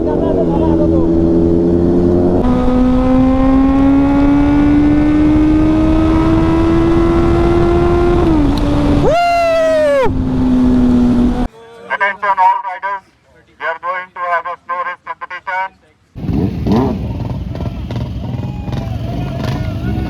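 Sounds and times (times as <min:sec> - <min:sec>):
vehicle engine running under load: 0:16.2 - 0:20.0.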